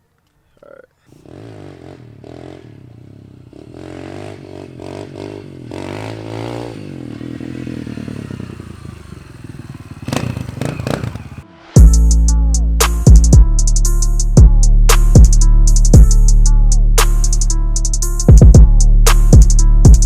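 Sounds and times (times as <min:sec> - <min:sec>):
dirt bike engine revving: 0:01.1 - 0:11.5.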